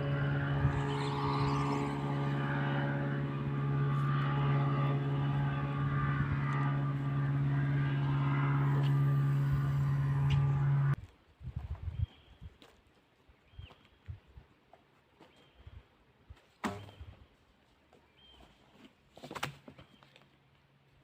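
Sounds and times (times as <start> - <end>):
steady engine drone: 0.0 - 11.0.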